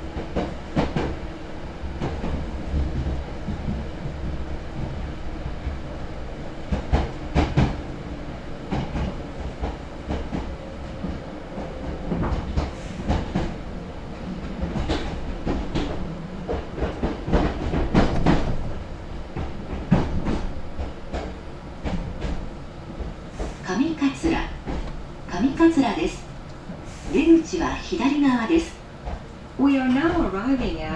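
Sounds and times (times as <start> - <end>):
train rumbling: 0.0 - 30.9
wheels clacking over rail joints: 14.3 - 25.6.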